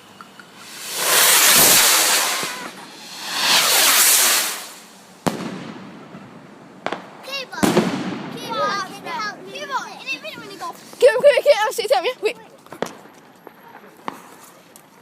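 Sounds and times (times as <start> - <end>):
firework rockets whooshing: 0.5 - 6.1
firework bang: 0.6 - 8.6.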